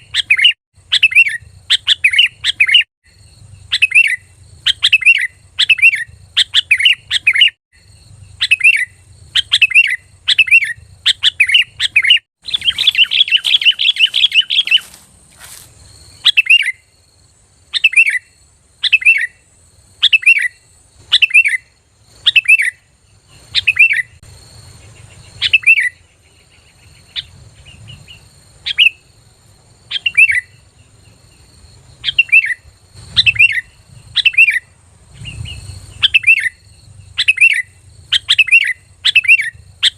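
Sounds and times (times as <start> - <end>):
bulbul calling: 0.0 - 16.9, 17.7 - 29.1, 29.9 - 39.9
bird rapid chattering: 8.2 - 15.6.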